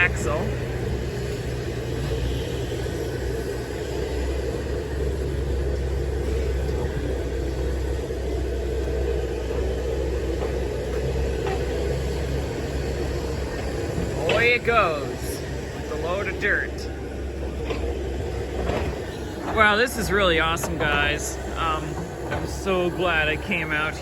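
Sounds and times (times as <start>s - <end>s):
diesel truck engine rumbling: 0.0s - 24.0s.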